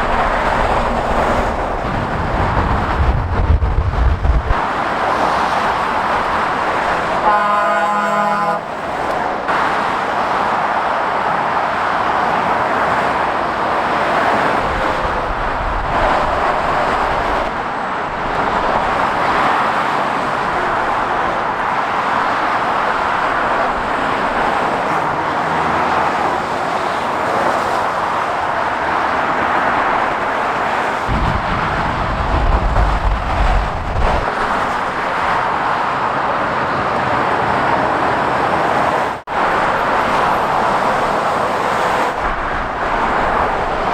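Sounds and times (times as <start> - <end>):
low rumble of big vehicles: 0.0 - 43.9
motorway traffic: 0.0 - 43.9
vehicle horn: 7.2 - 8.8.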